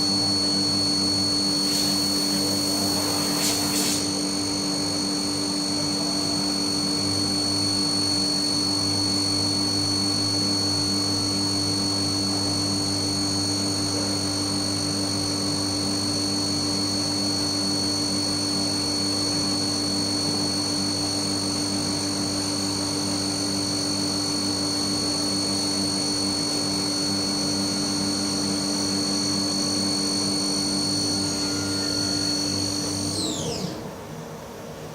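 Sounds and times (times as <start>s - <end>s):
low machine hum: 0.0s - 8.5s
spindle high-pitched whine: 0.0s - 34.9s.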